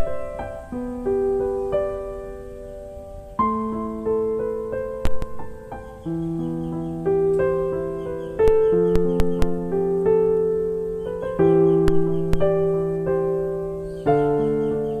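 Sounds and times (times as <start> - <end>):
slow gentle piano music: 0.0 - 15.0
sharp click: 5.0 - 5.4.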